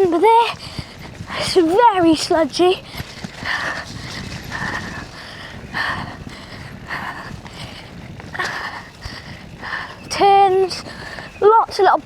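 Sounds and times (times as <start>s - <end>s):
tyres rumbling: 0.0s - 12.0s
wind on microphone: 0.0s - 12.0s
person breathing hard: 0.6s - 1.6s, 2.8s - 10.0s, 10.8s - 11.4s.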